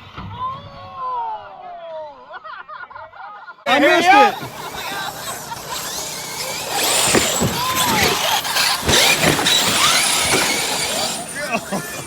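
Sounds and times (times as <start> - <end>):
rc truck motors whining: 3.7 - 12.0
thuds: 6.7 - 11.4.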